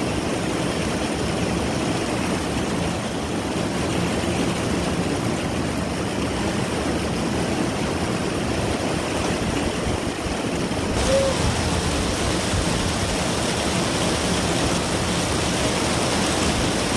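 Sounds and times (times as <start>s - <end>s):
heavy rain hissing: 10.7s - 16.9s.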